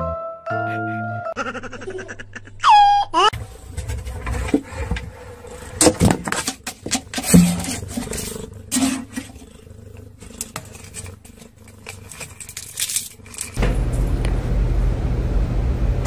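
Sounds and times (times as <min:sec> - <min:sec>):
cat growling: 0:05.1 - 0:13.6.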